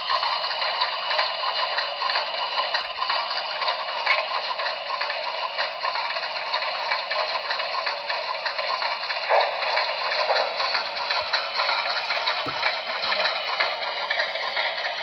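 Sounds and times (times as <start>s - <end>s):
model locomotive clattering: 0.0s - 15.0s.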